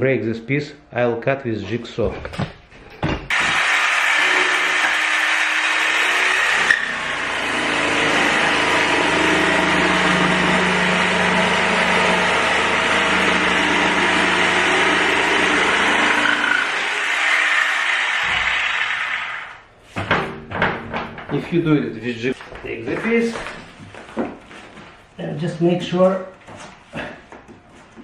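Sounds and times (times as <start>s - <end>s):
jigsaw cutting cork: 3.3s - 7.0s, 13.6s - 19.6s.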